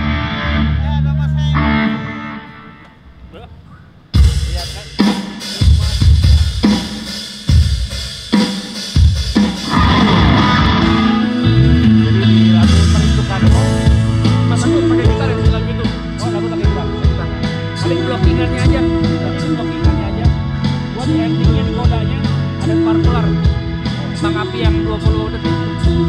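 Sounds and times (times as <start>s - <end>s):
band playing bass guitar and drums: 0.0s - 2.9s, 4.1s - 26.0s
loud drum hits: 4.2s - 15.8s.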